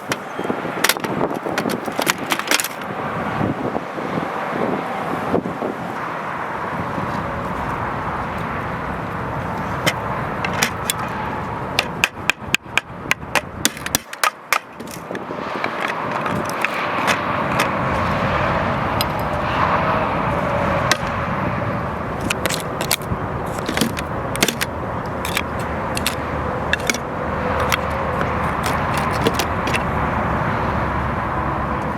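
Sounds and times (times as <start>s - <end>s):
digging tool striking ground: 0.8s - 2.8s, 9.4s - 18.2s, 20.8s - 21.1s, 22.2s - 29.8s.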